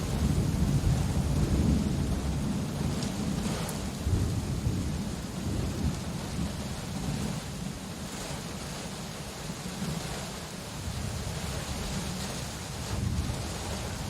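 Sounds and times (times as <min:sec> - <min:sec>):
thunder rumbling: 0:00.0 - 0:07.6, 0:10.9 - 0:14.0
steady rain: 0:00.0 - 0:14.0.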